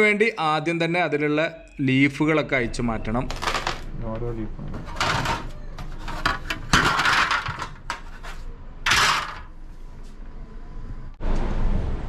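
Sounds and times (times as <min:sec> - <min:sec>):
fan blades clattering and scraping: 0:04.6 - 0:09.6.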